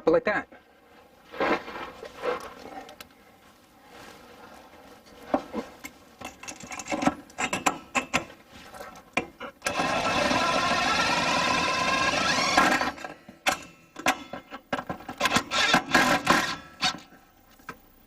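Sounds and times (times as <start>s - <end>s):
power drill driving screw: 9.6s - 13.6s, 15.2s - 17.1s.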